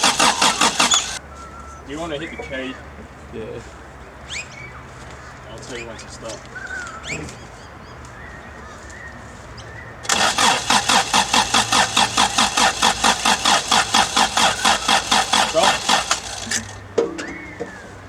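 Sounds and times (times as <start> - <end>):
engine cranking by starter motor: 0.0 - 1.2, 10.0 - 17.0.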